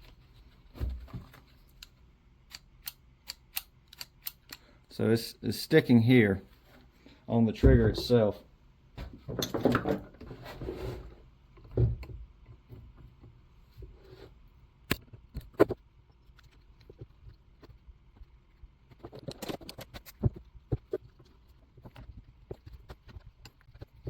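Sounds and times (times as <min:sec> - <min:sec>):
clicks of small metal parts: 0:01.8 - 0:04.7.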